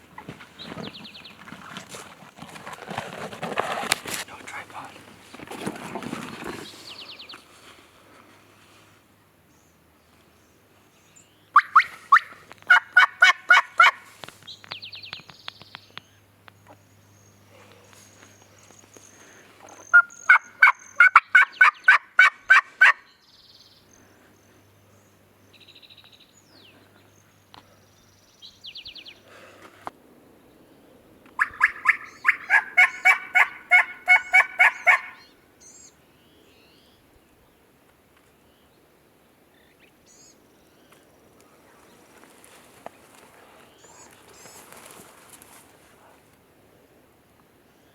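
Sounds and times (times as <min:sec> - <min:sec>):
soft turkey calls: 0:11.5 - 0:16.8, 0:17.5 - 0:23.1, 0:31.3 - 0:35.3
turkey yelping: 0:11.6 - 0:14.1, 0:19.9 - 0:23.1, 0:31.4 - 0:35.3.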